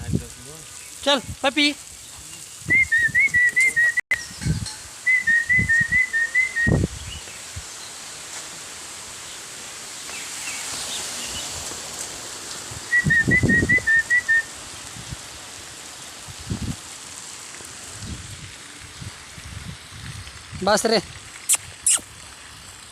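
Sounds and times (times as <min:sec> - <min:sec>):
person whistling to call dog: 0:02.7 - 0:04.1, 0:05.1 - 0:06.9, 0:12.9 - 0:14.5.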